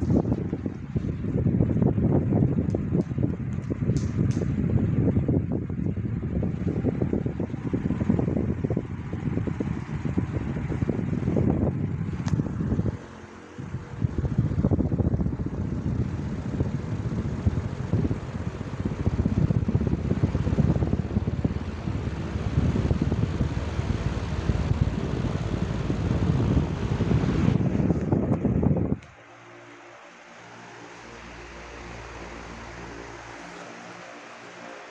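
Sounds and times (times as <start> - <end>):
fan wind buffeting microphone: 0.0 - 34.9.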